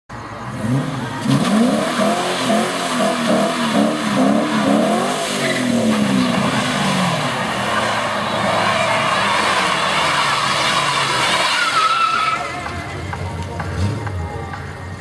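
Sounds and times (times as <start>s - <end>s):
car engine revving hard: 0.4s - 12.5s, 13.6s - 14.3s
tyres squealing: 4.9s - 14.8s.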